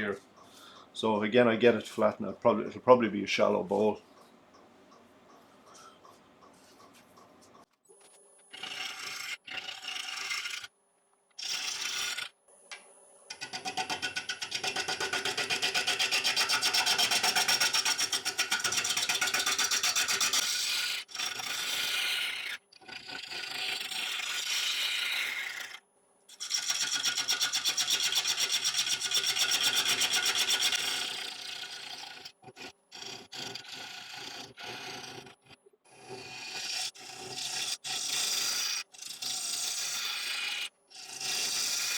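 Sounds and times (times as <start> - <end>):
gouge cutting wood on a lathe: 30.0 - 41.9.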